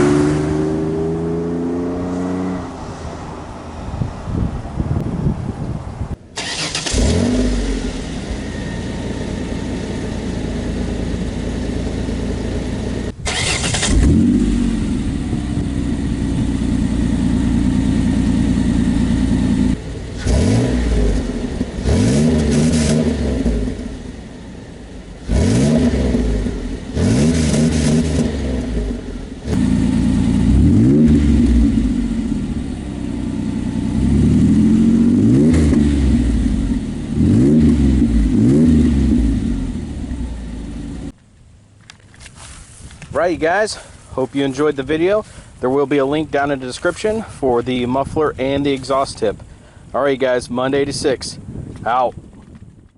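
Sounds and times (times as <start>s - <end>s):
car engine idling and revving: 0.0s - 4.3s, 6.3s - 41.2s.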